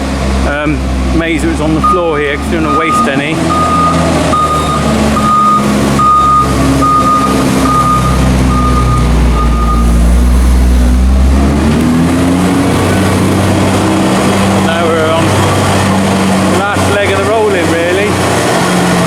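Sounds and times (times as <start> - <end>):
tractor diesel engine under load: 0.0 - 19.0
reversing alarm beeping: 1.8 - 11.1.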